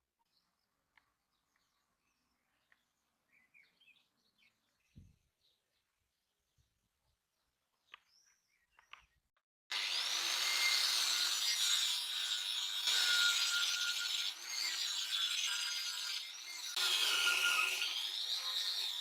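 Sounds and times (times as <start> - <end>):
power tool grinding: 9.7 - 19.0.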